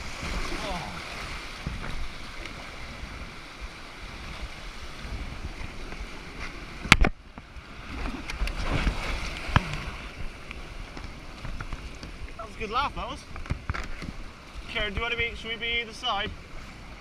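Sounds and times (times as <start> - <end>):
wind buffeting microphone: 0.0 - 15.5
rushing water: 0.0 - 17.0
kayak knocking: 8.2 - 15.4.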